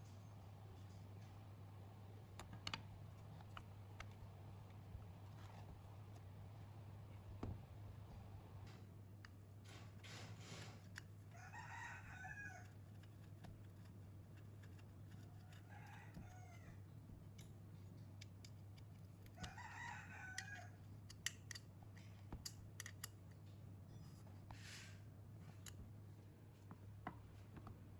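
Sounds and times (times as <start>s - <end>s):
rooster crowing faintly: 11.3s - 12.9s, 15.2s - 16.9s, 19.4s - 20.8s.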